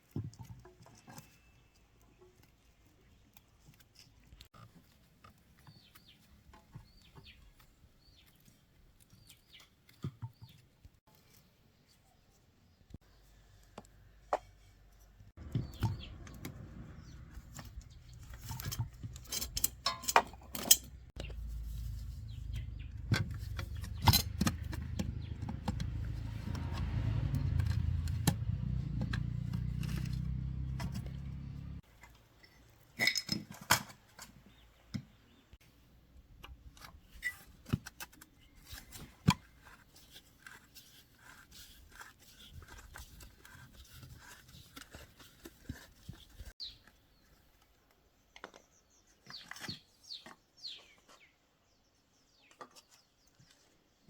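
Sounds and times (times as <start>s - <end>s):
metal tools clinking: 17.5s - 21.1s, 23.3s - 25.0s, 32.4s - 33.9s.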